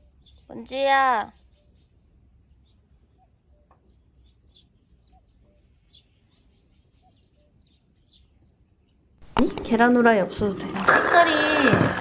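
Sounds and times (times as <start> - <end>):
faint small bird chirps: 0.0 - 9.0.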